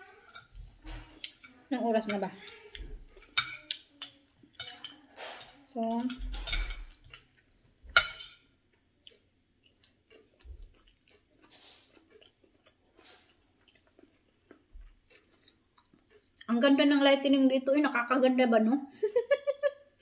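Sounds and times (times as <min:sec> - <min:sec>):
person chewing: 0:06.3 - 0:07.7, 0:08.4 - 0:16.5
spoon clinking on plate: 0:07.9 - 0:08.5.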